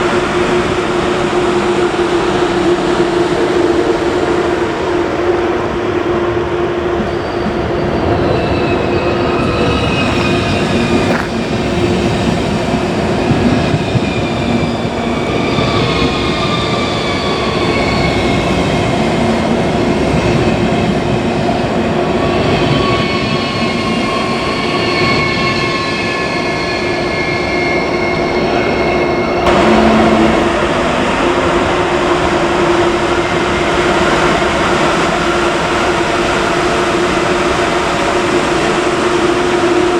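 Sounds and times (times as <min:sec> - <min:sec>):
train running noise: 0:00.0 - 0:39.9
high whining tones: 0:26.8 - 0:31.5.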